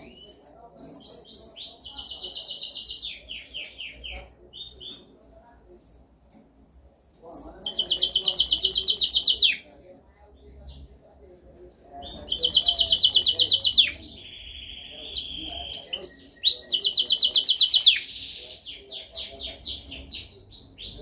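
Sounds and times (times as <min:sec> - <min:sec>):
canary singing trills: 0:00.0 - 0:05.1, 0:07.0 - 0:09.7, 0:11.7 - 0:21.0.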